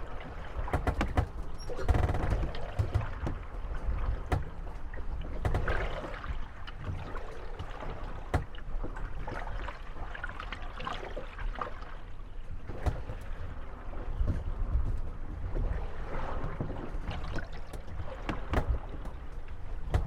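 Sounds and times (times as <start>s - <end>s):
water lapping against hulls: 0.0s - 20.0s
boats knocking together: 0.1s - 9.5s, 12.5s - 20.0s
wood creaking: 0.3s - 6.2s, 17.7s - 20.0s.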